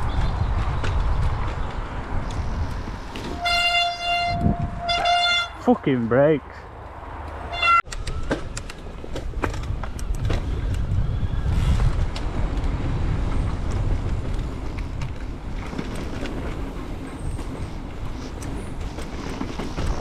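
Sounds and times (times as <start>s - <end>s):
wind rumble on microphone: 0.0s - 5.5s, 7.9s - 20.0s
bike rattling over rough ground: 8.0s - 20.0s.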